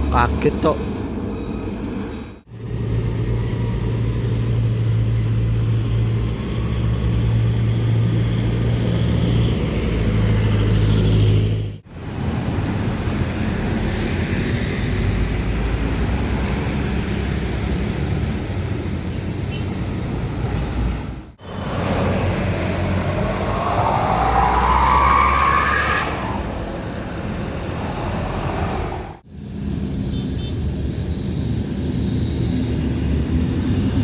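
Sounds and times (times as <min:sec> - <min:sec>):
road traffic passing: 0:00.0 - 0:31.1
truck engine droning: 0:21.4 - 0:29.2.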